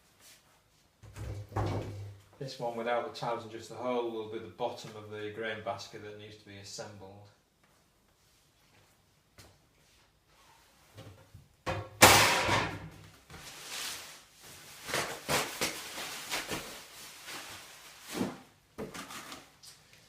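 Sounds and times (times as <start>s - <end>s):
wrapping and cardboard crackling: 13.2s - 19.6s.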